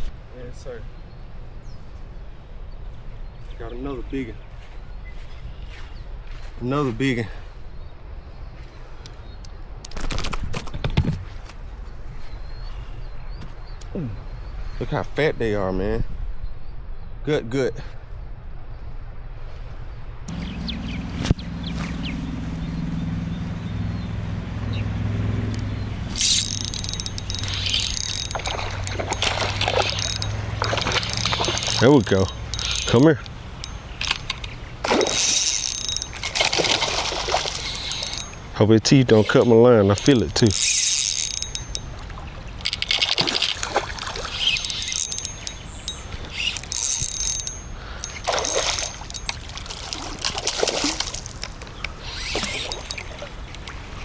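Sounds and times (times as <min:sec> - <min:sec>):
fishing reel ticking and rattling: 0:23.2 - 0:53.6.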